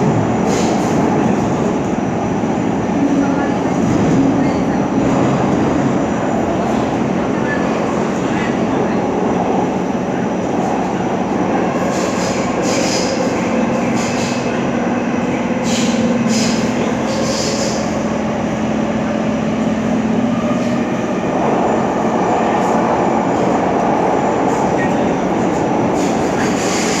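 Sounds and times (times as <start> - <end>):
train cabin rumble and hiss: 0.0 - 27.0.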